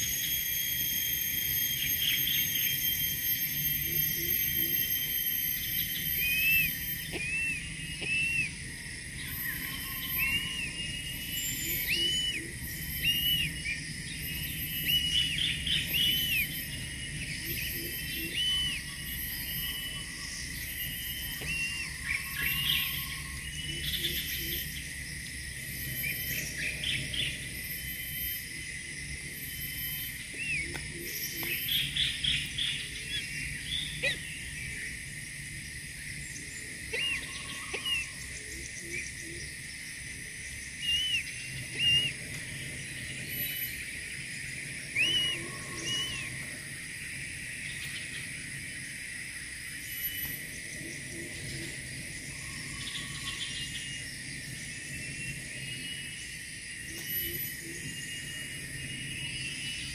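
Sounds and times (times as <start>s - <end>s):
high bird chirps: 0.0s - 24.8s, 29.4s - 34.8s, 40.7s - 43.9s
high-pitched hum: 0.0s - 48.9s, 49.6s - 59.9s.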